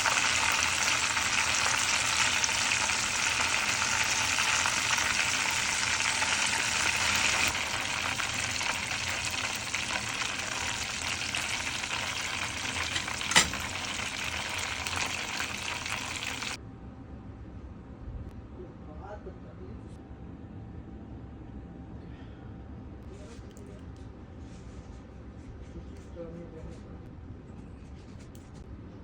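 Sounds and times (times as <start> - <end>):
chicken frying in hot oil: 0.0 - 16.6.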